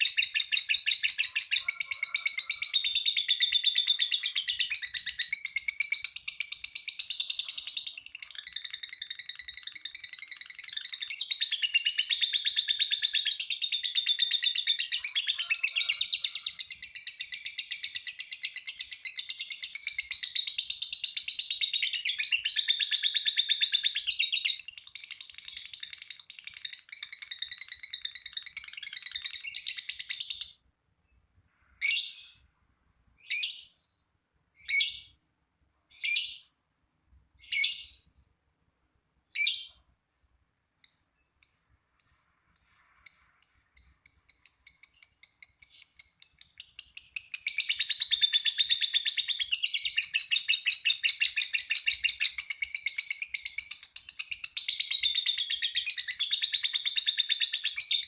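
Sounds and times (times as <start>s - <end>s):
lovebird chattering trill: 0.0s - 30.6s, 39.4s - 58.0s
lovebird chirps: 0.0s - 31.2s, 31.8s - 32.5s, 33.2s - 35.2s, 35.9s - 36.6s, 37.4s - 38.4s, 39.3s - 58.0s.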